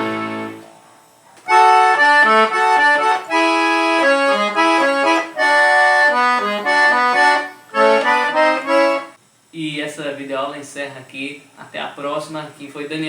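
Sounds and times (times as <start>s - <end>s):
accordion melody: 0.0s - 0.7s, 1.5s - 9.2s.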